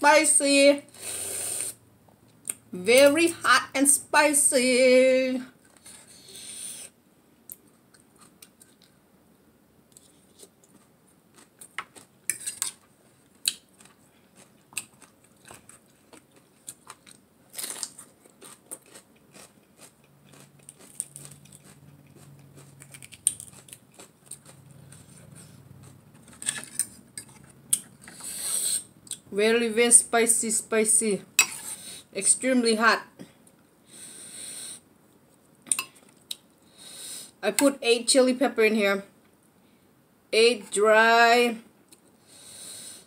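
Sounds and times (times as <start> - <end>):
person chewing crunchy salad: 10.0 - 29.2.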